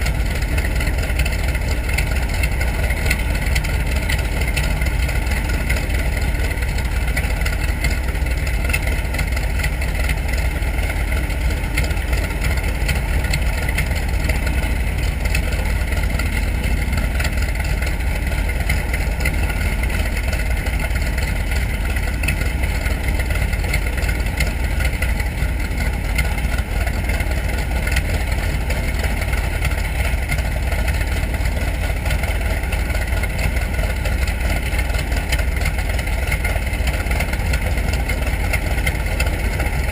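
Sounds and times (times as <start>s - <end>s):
radial aircraft engine running: 0.0s - 39.9s.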